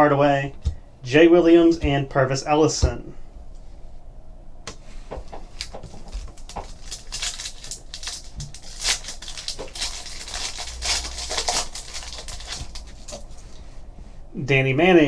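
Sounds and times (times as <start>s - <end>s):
foil wrapper crinkling and tearing: 5.5s - 13.5s.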